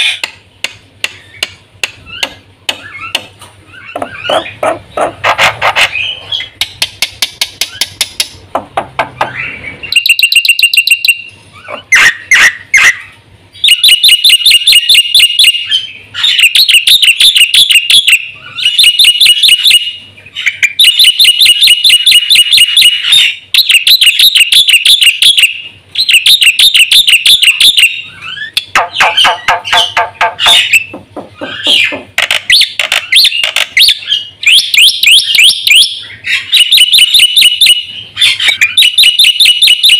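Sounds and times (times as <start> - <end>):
starling singing rapid notes: 9.1 - 39.9.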